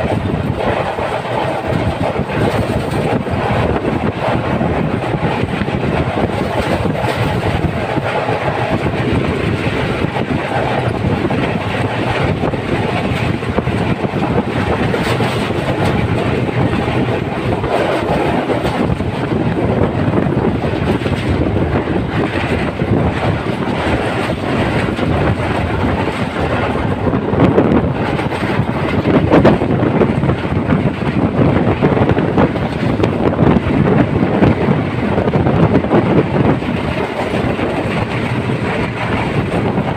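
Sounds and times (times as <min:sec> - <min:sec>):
train carriage shaking: 0:00.0 - 0:39.9
train wheels clattering on rails: 0:00.0 - 0:39.9.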